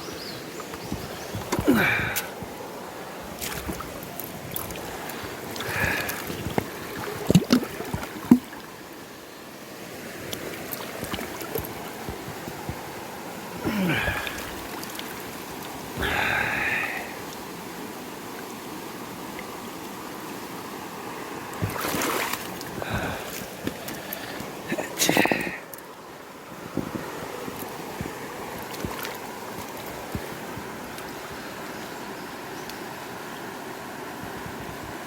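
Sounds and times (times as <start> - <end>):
river rushing: 0.0 - 35.0
knocks and splashing: 0.7 - 2.5, 3.3 - 8.6, 21.6 - 23.9.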